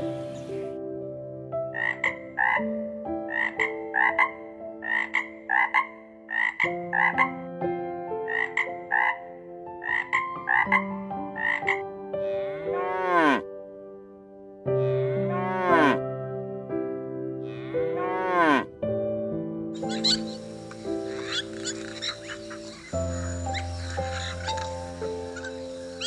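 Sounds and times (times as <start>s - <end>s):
soft keyboard chords: 0.0s - 4.8s, 6.8s - 26.0s
frog croaking: 1.7s - 2.6s, 3.3s - 7.4s, 8.3s - 13.4s, 14.9s - 16.0s, 19.8s - 26.0s
cow mooing: 12.3s - 13.4s, 15.0s - 16.0s, 18.0s - 18.7s.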